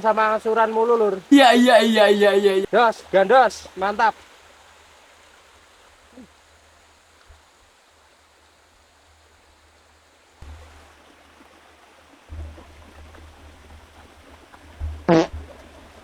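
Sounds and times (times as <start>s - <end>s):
stream water rushing: 0.0s - 16.0s
low rumble on microphone: 12.3s - 16.0s.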